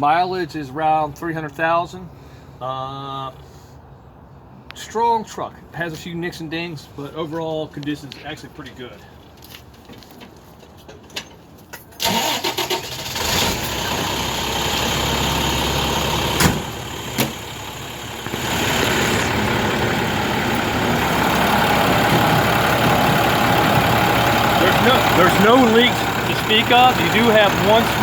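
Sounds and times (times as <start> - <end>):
diesel engine cranking and idling: 12.0 - 28.0.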